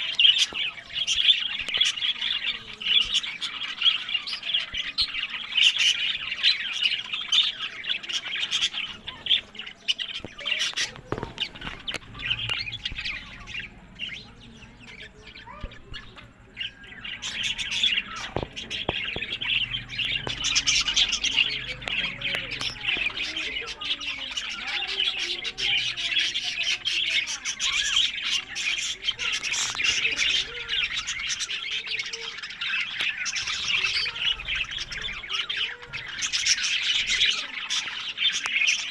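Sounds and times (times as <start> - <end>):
budgerigars chattering and chirping: 0.0 - 38.9.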